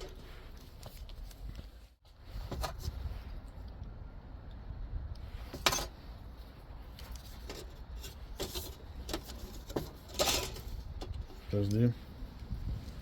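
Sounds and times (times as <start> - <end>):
metal parts clinking and rattling: 8.4 - 11.2.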